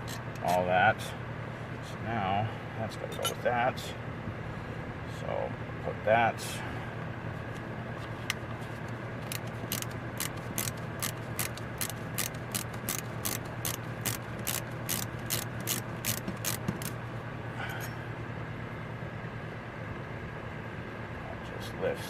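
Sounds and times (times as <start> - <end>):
hand ratchet clicking: 0.0 - 0.6, 9.2 - 17.0
steady low hum: 0.0 - 22.0.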